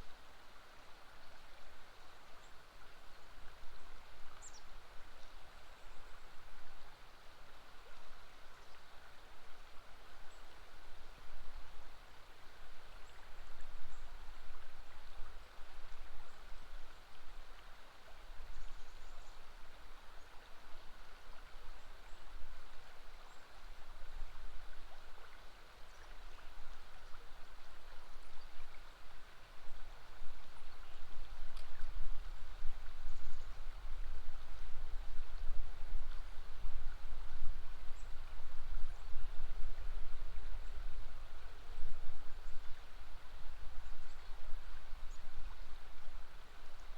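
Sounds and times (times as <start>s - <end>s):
river water flowing: 0.0s - 46.9s.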